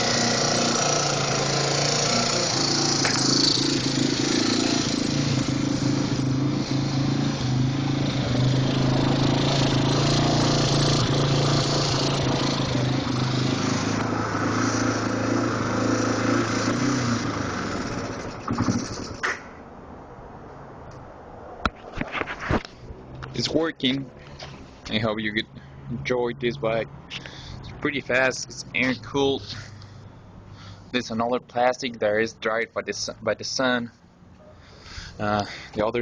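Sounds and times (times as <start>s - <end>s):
motorcycle engine running: 0.0s - 19.2s
engine knocks: 17.8s - 19.5s.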